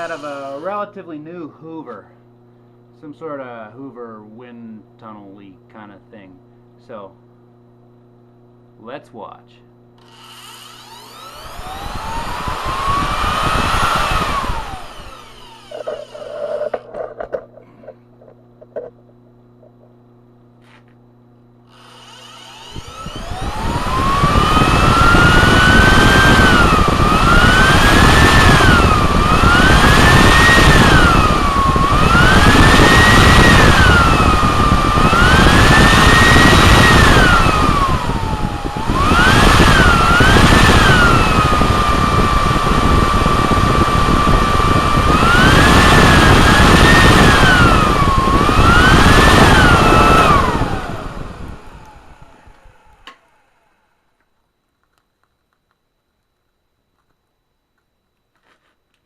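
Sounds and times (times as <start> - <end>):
vacuum cleaner motor whining: 0.0 - 0.9, 10.0 - 17.4, 21.7 - 54.0.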